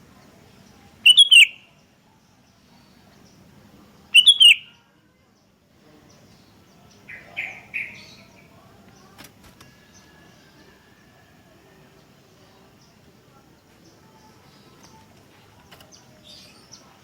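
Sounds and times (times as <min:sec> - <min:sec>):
bird calling: 0:01.0 - 0:01.6, 0:04.1 - 0:04.7.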